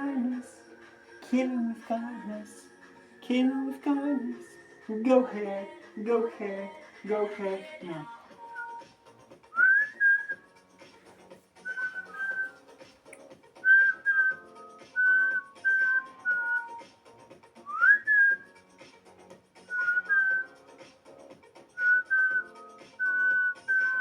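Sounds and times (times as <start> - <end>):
faint pop backing music: 0.0 - 24.0
ocarina melody: 11.6 - 12.6.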